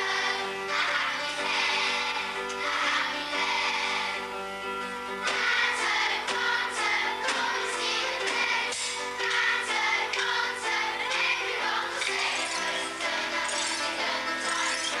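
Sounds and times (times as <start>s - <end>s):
instrumental accompaniment: 4.3s - 15.0s
children singing in chorus: 5.3s - 15.0s.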